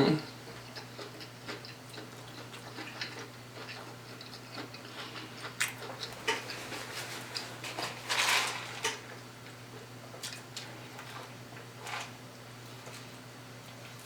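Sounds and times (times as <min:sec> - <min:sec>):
low electrical hum: 0:00.0 - 0:14.0
person chewing food: 0:00.4 - 0:07.7.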